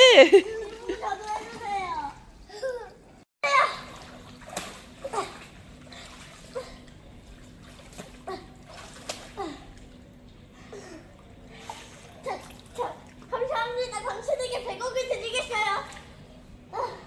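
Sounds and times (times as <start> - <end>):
water splashing and trickling: 0.0 - 16.4
short splashes and plops: 3.5 - 13.5.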